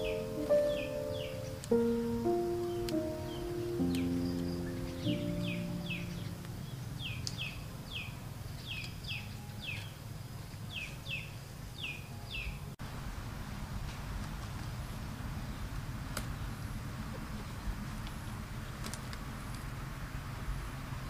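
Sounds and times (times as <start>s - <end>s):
low outdoor rumble: 0.0s - 10.3s
bird chirping: 0.0s - 12.7s.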